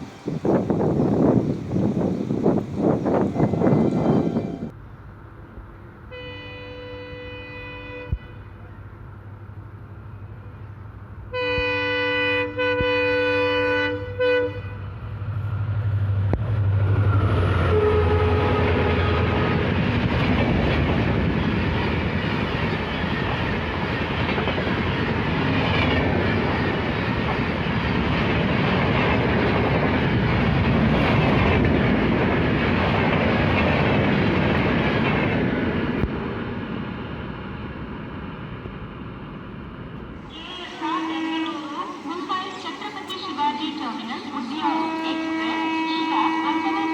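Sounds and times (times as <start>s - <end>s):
locomotive horn blasts: 6.1s - 8.8s, 11.3s - 14.9s, 17.7s - 19.8s, 40.3s - 42.5s, 44.6s - 46.9s
train wheels clattering on rails: 19.1s - 36.4s.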